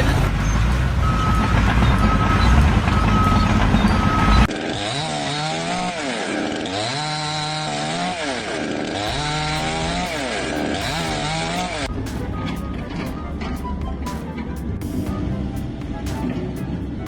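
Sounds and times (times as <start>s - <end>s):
small engine revving: 0.0s - 11.9s
loud low rumble: 9.1s - 17.0s.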